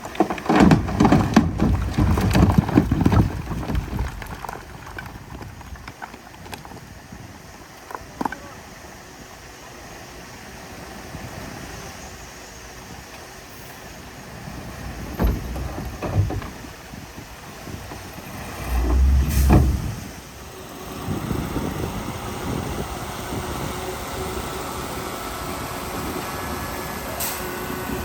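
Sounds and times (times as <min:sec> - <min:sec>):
diesel machinery engine running: 0:08.8 - 0:28.0.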